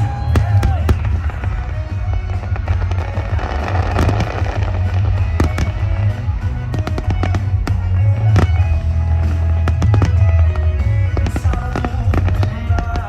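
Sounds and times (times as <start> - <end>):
fireworks bangs and crackles: 0.0 - 13.0
music playing: 0.0 - 13.0.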